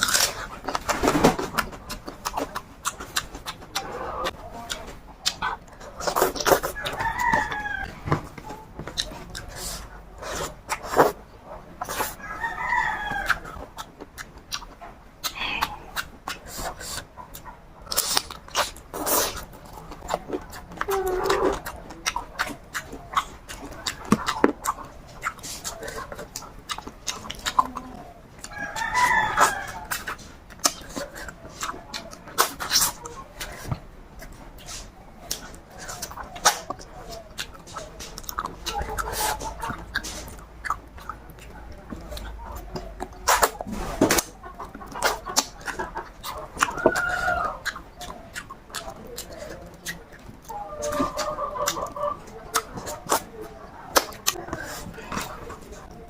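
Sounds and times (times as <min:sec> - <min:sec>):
eating clicks and crunches: 0:00.0 - 0:56.0
rooster crowing: 0:06.7 - 0:08.1, 0:12.2 - 0:13.5, 0:28.5 - 0:30.0.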